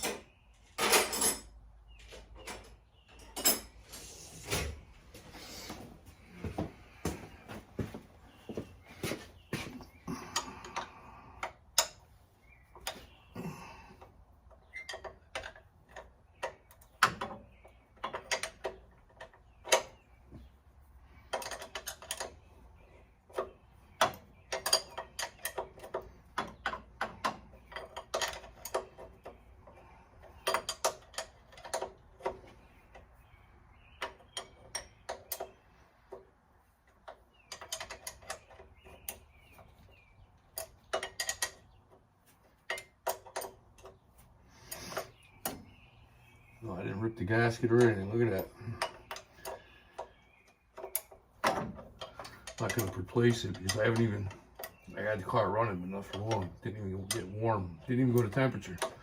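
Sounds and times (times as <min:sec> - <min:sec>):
metal tools clinking: 0:00.0 - 0:04.7, 0:23.4 - 0:32.5, 0:37.0 - 0:39.9, 0:40.5 - 0:50.1, 0:50.7 - 0:59.0.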